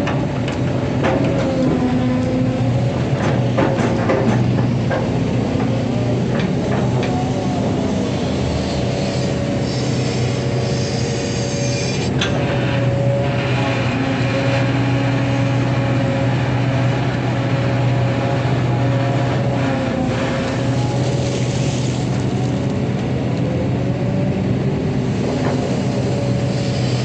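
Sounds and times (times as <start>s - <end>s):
excavator diesel engine: 0.0s - 27.0s.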